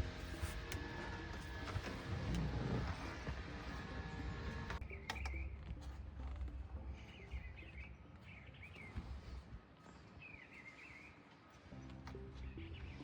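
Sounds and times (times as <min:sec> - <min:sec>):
songbird chirping: 0:04.8 - 0:13.0.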